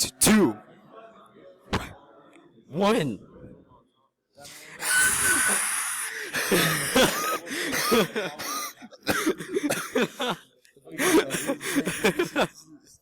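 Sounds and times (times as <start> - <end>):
person making vocal sounds: 4.8 - 8.0.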